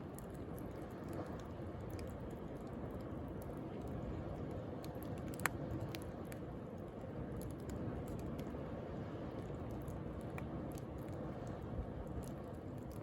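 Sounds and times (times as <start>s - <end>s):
bonfire crackling and popping: 0.0s - 8.6s.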